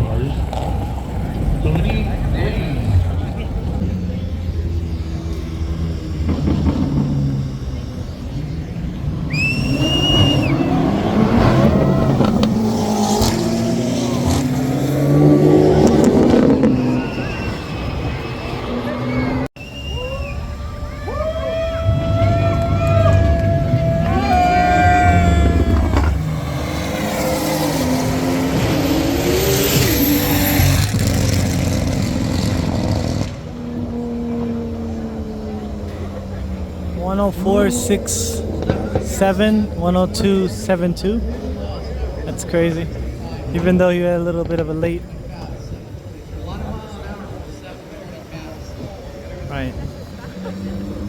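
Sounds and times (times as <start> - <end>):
car engine revving: 0.0 - 51.0
high whistle: 4.1 - 13.3, 15.6 - 31.2.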